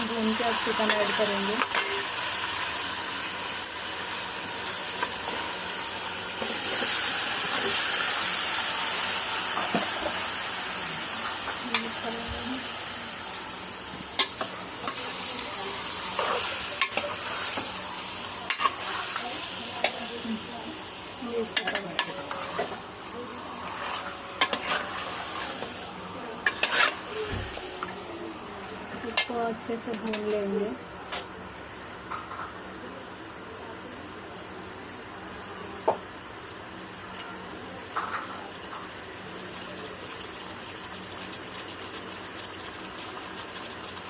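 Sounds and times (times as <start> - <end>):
chicken frying in hot oil: 0.0 - 44.0
spatula scraping pot: 23.6 - 25.5, 26.4 - 27.0.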